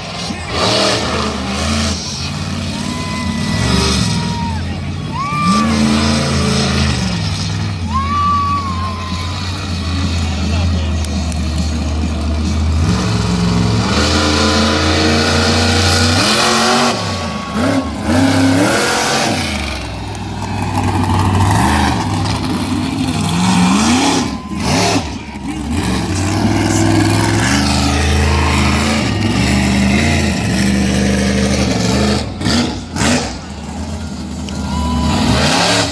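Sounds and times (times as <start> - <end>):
monster truck engine revving: 0.0 - 35.9.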